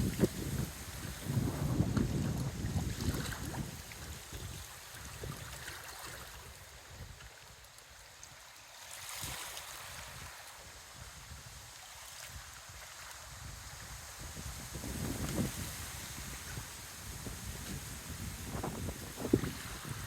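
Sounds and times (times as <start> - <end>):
wind buffeting microphone: 0.0 - 5.7, 13.3 - 20.0.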